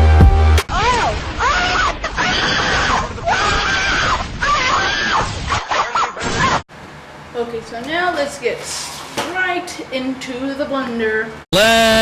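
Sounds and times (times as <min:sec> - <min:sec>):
high-pitched voice screaming: 0:00.7 - 0:05.3.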